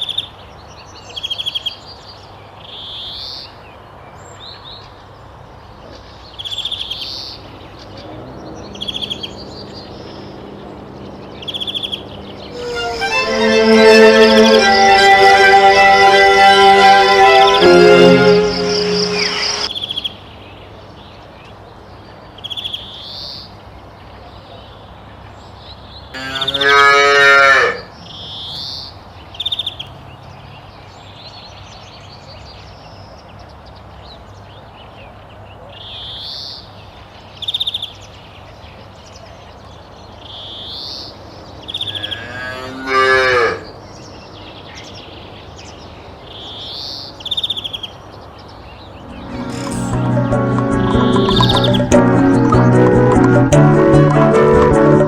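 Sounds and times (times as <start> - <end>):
cow mooing: 26.2 - 27.8, 42.0 - 43.6.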